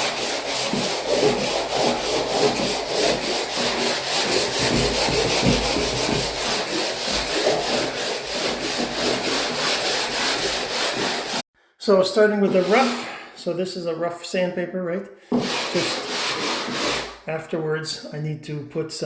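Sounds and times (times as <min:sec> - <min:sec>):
sandpaper rasping on a wall: 0:00.0 - 0:11.4, 0:12.4 - 0:13.2, 0:15.3 - 0:17.2.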